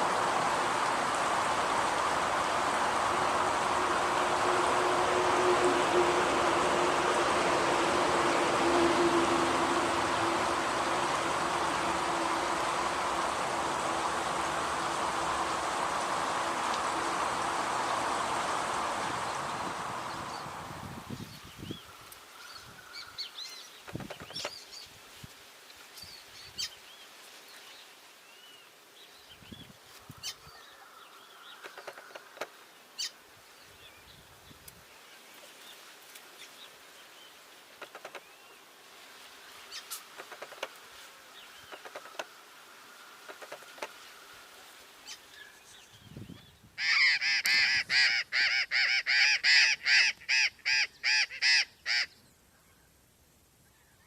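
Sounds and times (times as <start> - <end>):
jay harsh calls: 46.8 - 52.2.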